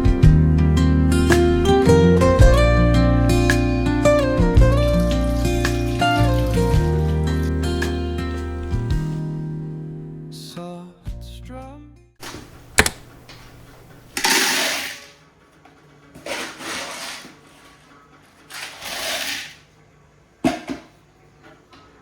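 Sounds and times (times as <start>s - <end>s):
sharp click: 12.2s - 14.4s.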